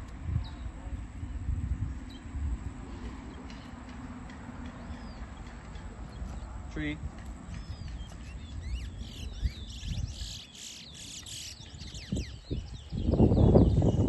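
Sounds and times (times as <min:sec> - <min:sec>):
bird singing whistled trills: 0:07.6 - 0:14.0.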